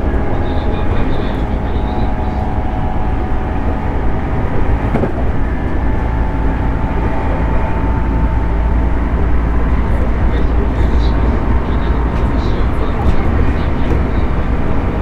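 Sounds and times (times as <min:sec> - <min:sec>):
train motor hum: 0:00.0 - 0:15.0
train wheels rumbling on rail: 0:00.0 - 0:15.0.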